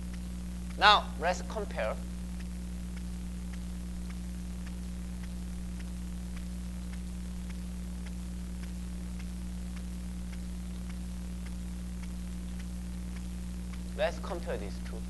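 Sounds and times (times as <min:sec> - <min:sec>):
faint regular ticks: 0:00.0 - 0:15.0
low electrical hum: 0:00.0 - 0:15.0.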